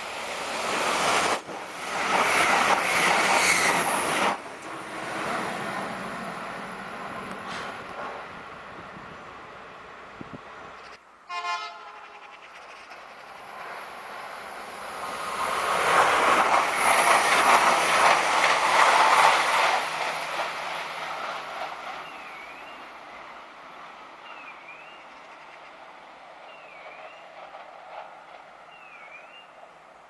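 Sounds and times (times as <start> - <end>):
train passing at speed: 0.0 - 30.0
train horn blast: 11.2 - 12.4.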